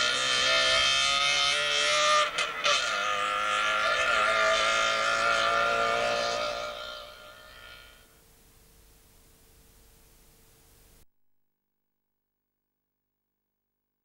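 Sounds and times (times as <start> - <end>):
rally car engine at high revs: 0.0 - 8.2.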